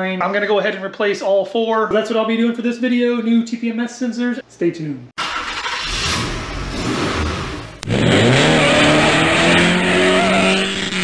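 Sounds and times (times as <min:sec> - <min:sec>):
car engine revving: 0:05.2 - 0:11.0.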